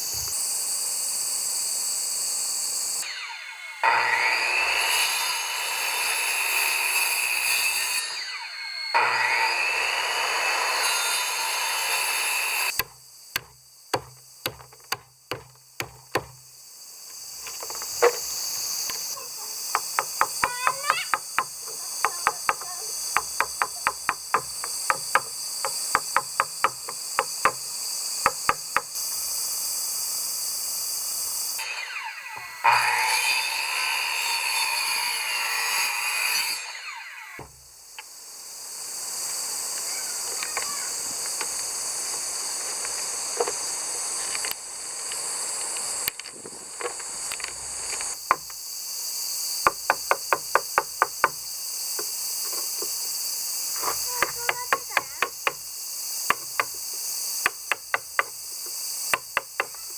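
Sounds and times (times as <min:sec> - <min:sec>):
insects buzzing: 0:00.0 - 0:59.9
power tool running: 0:02.6 - 0:12.8, 0:31.5 - 0:37.7
hammering on wood: 0:12.8 - 0:16.4, 0:19.7 - 0:27.6, 0:28.2 - 0:28.9, 0:48.3 - 0:48.5, 0:49.7 - 0:51.4, 0:54.2 - 0:55.6, 0:56.3 - 0:56.8, 0:57.4 - 0:58.4, 0:59.1 - 0:59.9.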